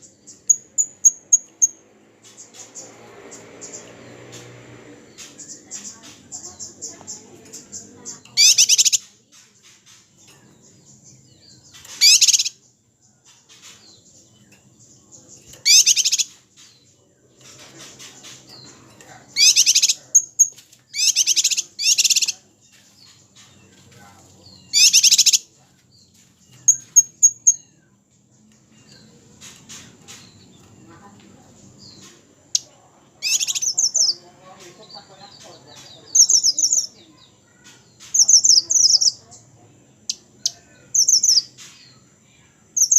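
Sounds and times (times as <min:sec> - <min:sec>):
small bird chirps: 0:00.0 - 0:42.9
bird harsh rapid trills: 0:08.4 - 0:10.1, 0:11.7 - 0:12.6, 0:15.6 - 0:16.7, 0:19.3 - 0:22.4, 0:24.7 - 0:25.5, 0:32.5 - 0:34.2.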